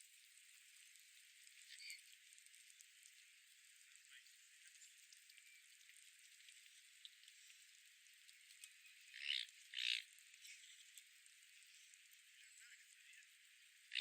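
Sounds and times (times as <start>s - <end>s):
faint ticks: 4.6s - 12.2s.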